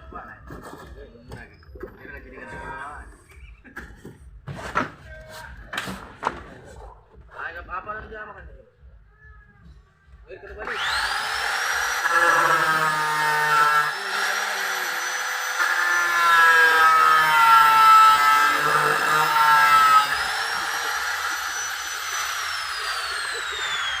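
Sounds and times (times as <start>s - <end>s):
power tool whining and grinding: 10.5s - 24.0s.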